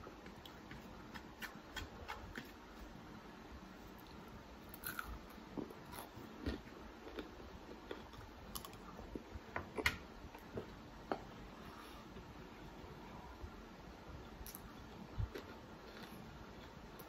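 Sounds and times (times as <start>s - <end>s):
biting and chewing crispy food: 4.7s - 8.8s, 15.3s - 17.0s.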